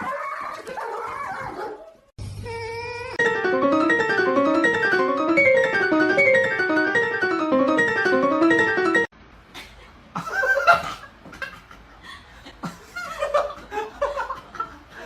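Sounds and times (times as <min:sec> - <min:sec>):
piano music: 0:03.2 - 0:09.1.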